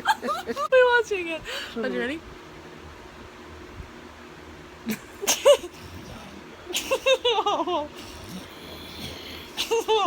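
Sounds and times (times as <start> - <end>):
child giggling: 0.0 - 0.7.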